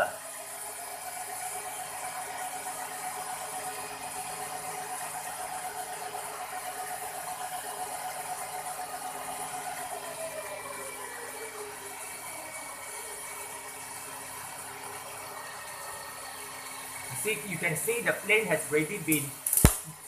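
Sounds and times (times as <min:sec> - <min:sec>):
toy helicopter rotors whirring: 0:17.1 - 0:20.0.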